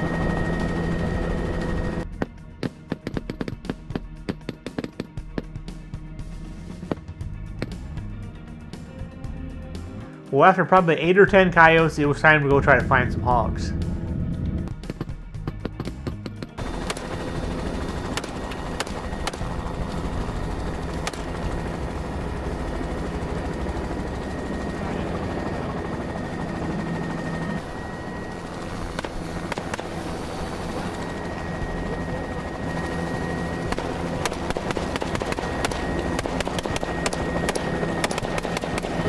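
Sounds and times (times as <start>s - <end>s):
helicopter drone and whine: 0.0s - 10.2s, 11.1s - 39.0s
rifle shots: 16.6s - 23.1s, 28.2s - 31.5s, 33.7s - 39.0s.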